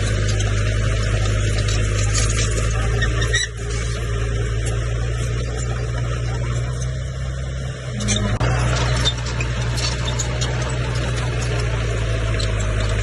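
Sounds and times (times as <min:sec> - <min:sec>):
bulldozer diesel engine running: 0:00.0 - 0:13.0
high squeaks from machine: 0:07.9 - 0:11.6.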